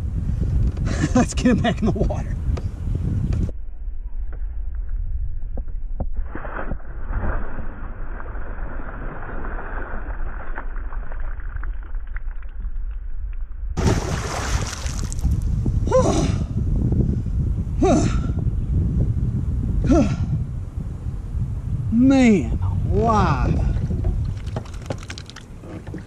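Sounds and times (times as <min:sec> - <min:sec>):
wind buffeting microphone: 0:00.0 - 0:03.6, 0:13.7 - 0:26.0
low rumble: 0:02.3 - 0:26.0
fish splashing into water: 0:13.8 - 0:15.4, 0:24.3 - 0:25.5
breathy voice sound: 0:15.8 - 0:16.6, 0:17.8 - 0:18.4, 0:19.8 - 0:20.4.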